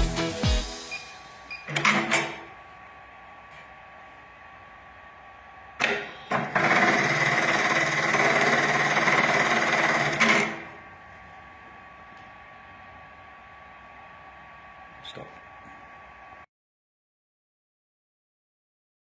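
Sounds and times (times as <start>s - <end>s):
sewing machine stitching fast: 5.8s - 10.8s.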